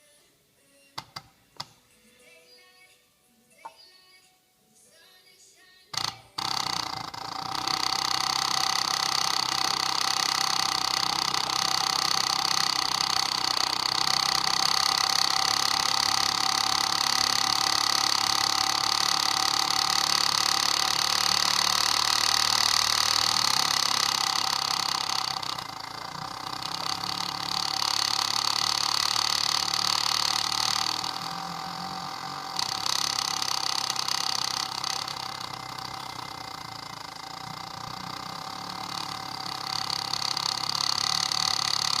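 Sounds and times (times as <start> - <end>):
electric fuel pump whine: 6.0 - 42.0.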